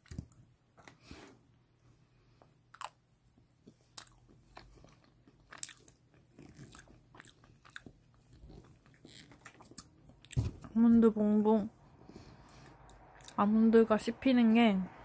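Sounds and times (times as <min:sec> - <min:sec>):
person chewing cake: 0:02.5 - 0:10.6.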